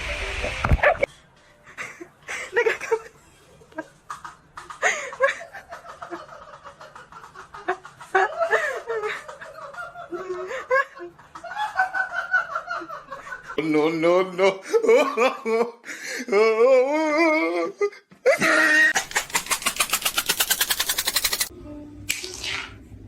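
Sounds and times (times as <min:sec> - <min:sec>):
people laughing: 0:01.7 - 0:15.8.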